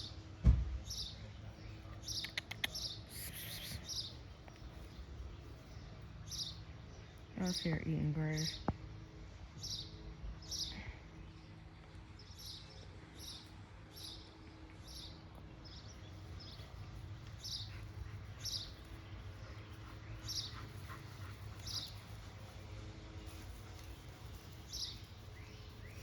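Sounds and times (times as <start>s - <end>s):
bird chirping: 0.9s - 4.2s, 14.9s - 22.1s.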